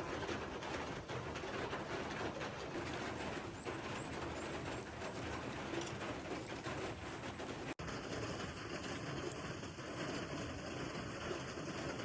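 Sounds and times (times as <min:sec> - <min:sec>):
steady outdoor hiss: 0:07.8 - 0:12.0.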